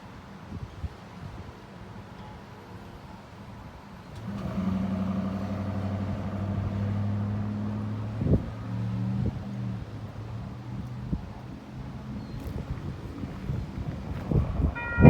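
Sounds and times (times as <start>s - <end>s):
diesel locomotive engine drone: 4.1s - 15.0s.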